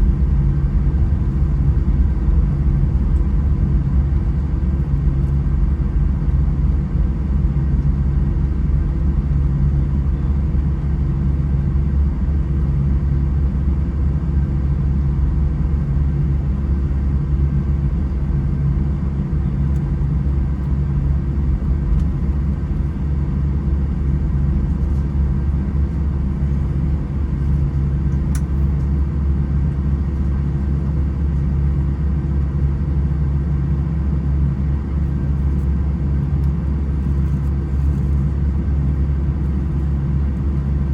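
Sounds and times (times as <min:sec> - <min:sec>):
jet engines rumbling: 0:00.0 - 0:10.9
faint constant hum: 0:00.0 - 0:40.9.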